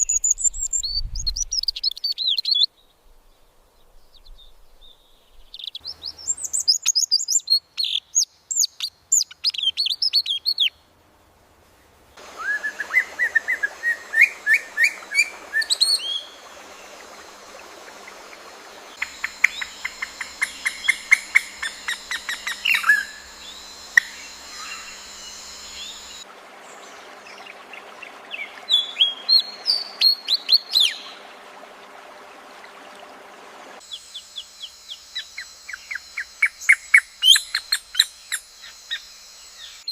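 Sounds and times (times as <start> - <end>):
songbird chirping: 0.0 - 10.8, 12.2 - 31.4, 33.8 - 39.9
background hiss: 10.5 - 39.9.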